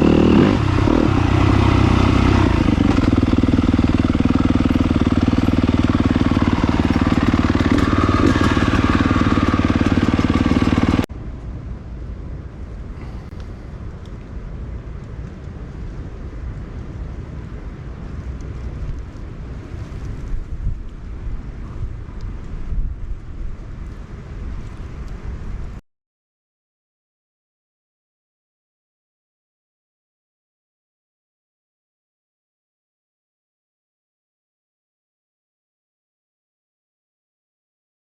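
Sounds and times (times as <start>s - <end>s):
motorcycle engine running: 0.0s - 11.1s
low rumble: 0.0s - 25.8s.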